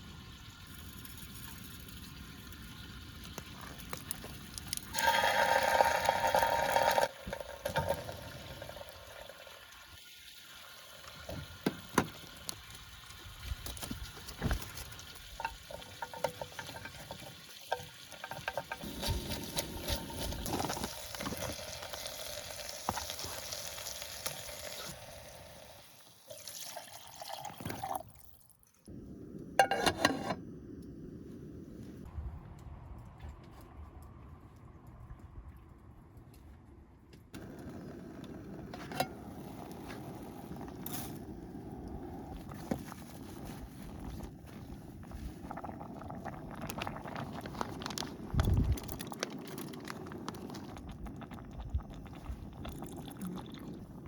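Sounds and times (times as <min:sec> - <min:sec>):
tap water running and splashing: 0:00.0 - 0:25.0, 0:26.3 - 0:28.3.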